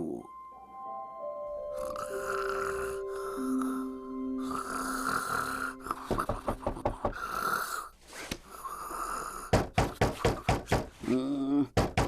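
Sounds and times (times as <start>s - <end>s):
cartoon character snoring: 1.8s - 7.9s, 8.5s - 9.5s
rapid knocking on door: 6.0s - 7.2s, 9.5s - 10.9s, 11.8s - 12.0s.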